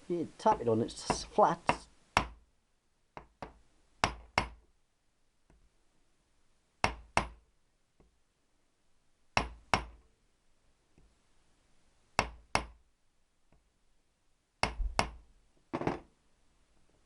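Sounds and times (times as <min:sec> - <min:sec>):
sharp taps on metal nut: 0:03.2 - 0:04.6.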